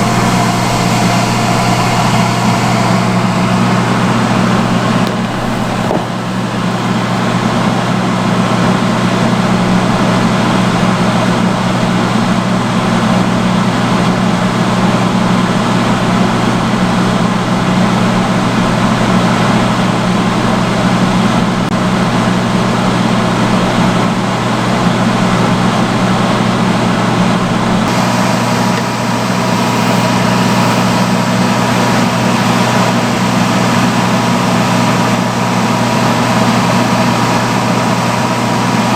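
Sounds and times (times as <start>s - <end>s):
faint high tone: 0.0s - 6.8s
blown air rushing: 0.0s - 7.6s
hood hair dryer motor hum: 0.0s - 7.8s, 27.9s - 38.9s.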